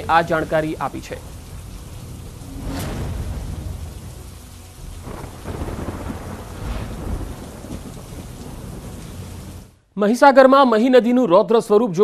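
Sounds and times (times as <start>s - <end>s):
rain falling: 0.0s - 9.8s
heavy low rumbling: 0.7s - 9.7s.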